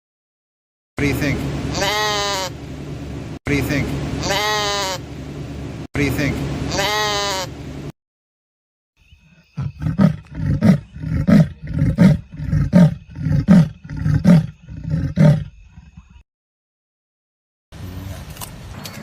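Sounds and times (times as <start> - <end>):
animal deep rhythmic grunts: 9.5 - 16.2.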